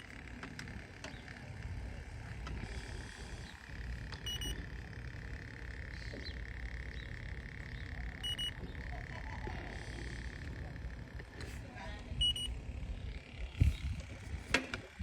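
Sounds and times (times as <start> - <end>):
short electronic beeps: 4.2 - 4.6, 8.2 - 8.6, 12.2 - 12.6.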